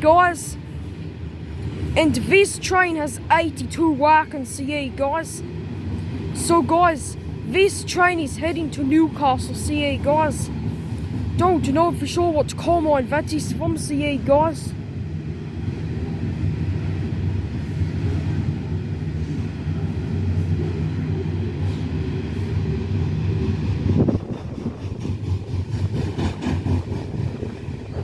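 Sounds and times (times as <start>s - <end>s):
train wagons rumbling: 0.0s - 28.0s.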